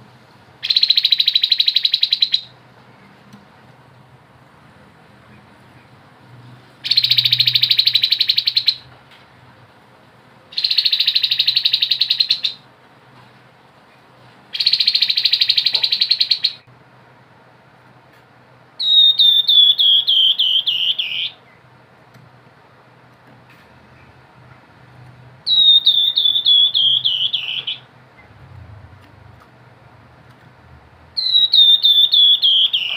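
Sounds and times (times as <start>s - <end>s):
bird whistled notes sliding downward: 18.8s - 21.2s, 25.5s - 27.8s, 31.2s - 32.9s.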